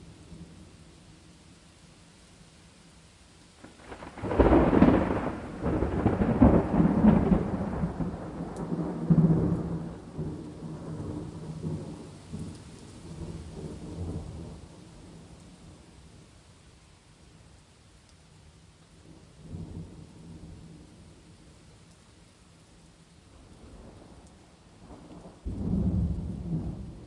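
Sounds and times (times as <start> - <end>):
faint rain patter: 0.0 - 27.0
rolling thunder: 3.7 - 15.2, 24.8 - 27.0.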